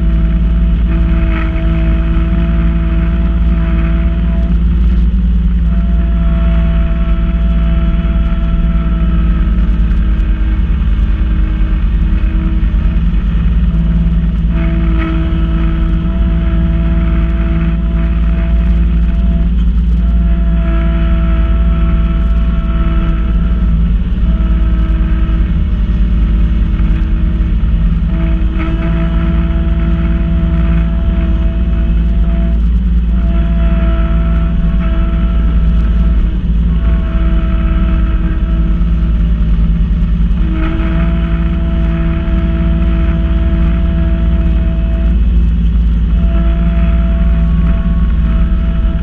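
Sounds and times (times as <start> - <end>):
snowblower whining: 0.0 - 49.0
tractor diesel engine running: 0.0 - 49.0.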